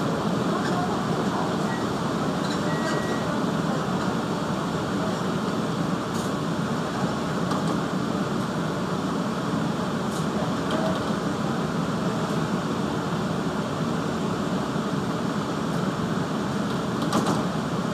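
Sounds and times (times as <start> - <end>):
train car rumbling on track: 0.0 - 17.9.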